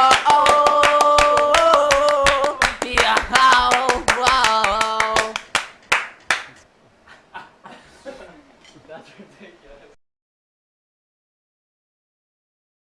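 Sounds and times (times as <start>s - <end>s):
hand clapping: 0.0s - 6.6s.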